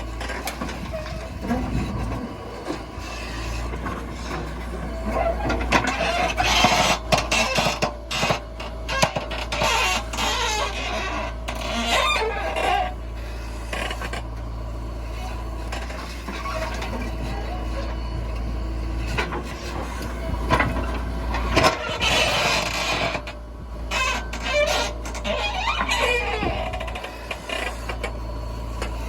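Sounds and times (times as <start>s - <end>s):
backhoe engine hum: 0.0s - 29.0s
wavering squeals: 23.9s - 29.0s.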